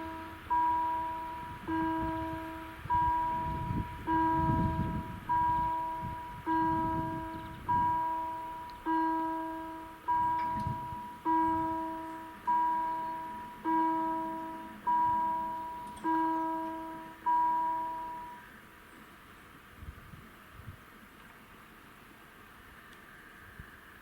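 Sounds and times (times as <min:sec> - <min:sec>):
level crossing bell ringing: 0:00.0 - 0:18.5.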